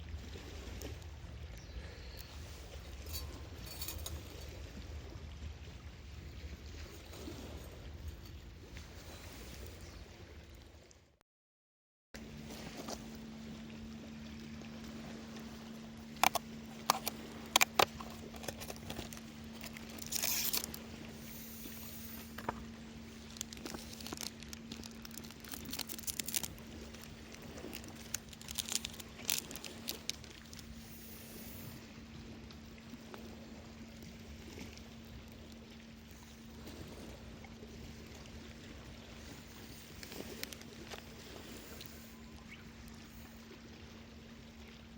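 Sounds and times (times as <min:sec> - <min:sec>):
steady low hum: 0:00.0 - 0:08.8, 0:12.2 - 0:44.9
clicks and knocks of gear handled: 0:16.2 - 0:20.8, 0:23.4 - 0:27.1, 0:27.7 - 0:30.6
crinkling packaging: 0:16.2 - 0:20.8, 0:23.2 - 0:30.8.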